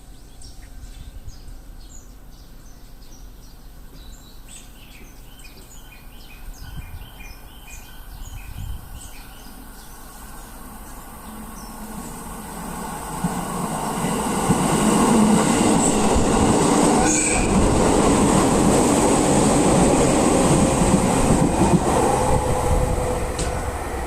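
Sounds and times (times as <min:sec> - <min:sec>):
train wheels rumbling on rails: 0:09.6 - 0:24.0.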